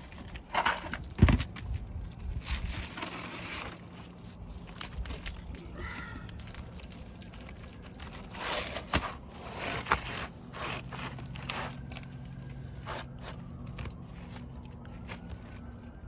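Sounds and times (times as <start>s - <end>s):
scraping on shingle roof: 2.4s - 5.3s, 6.3s - 16.0s.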